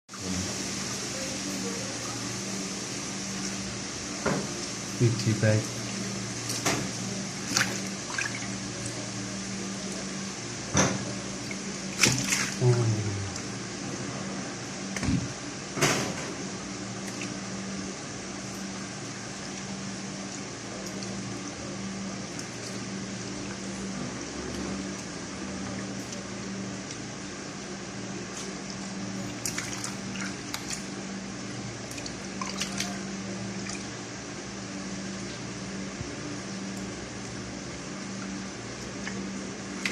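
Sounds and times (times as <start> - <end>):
water rinsing: 0.1 - 10.3, 11.0 - 13.9, 28.2 - 34.3, 38.0 - 39.9
steady low hum: 0.1 - 39.9
water splashing and trickling: 5.1 - 9.0, 11.4 - 12.7, 28.6 - 31.0, 31.6 - 34.0.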